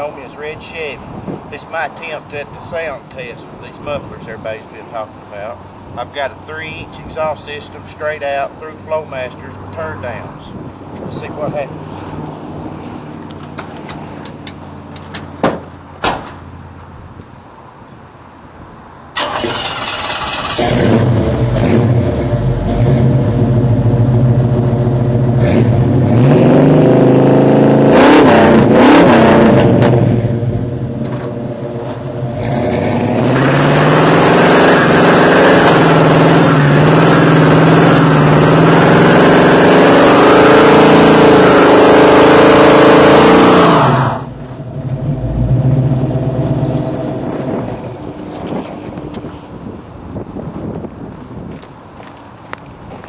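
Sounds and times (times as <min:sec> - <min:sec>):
car engine starting and revving: 0:19.2 - 0:49.1.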